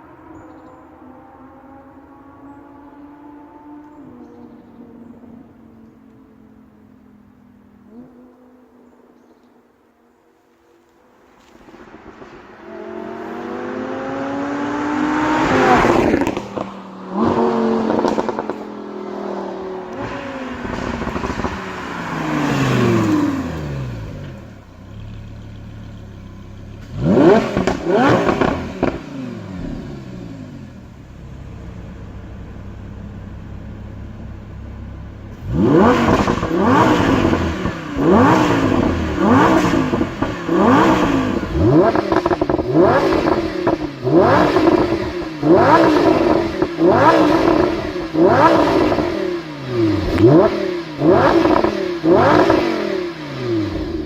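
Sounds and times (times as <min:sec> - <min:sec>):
exhaust crackle: 0:11.1 - 0:54.0
sports car engine revving: 0:11.4 - 0:54.0.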